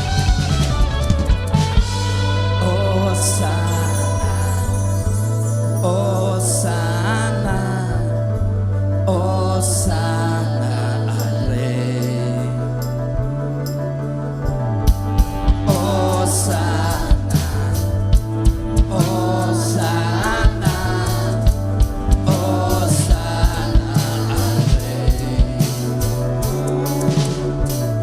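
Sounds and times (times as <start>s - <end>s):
drum kit beats: 0.0s - 5.6s, 14.4s - 28.0s
bass and keyboard notes: 0.0s - 28.0s
person singing: 2.1s - 13.1s, 15.3s - 28.0s.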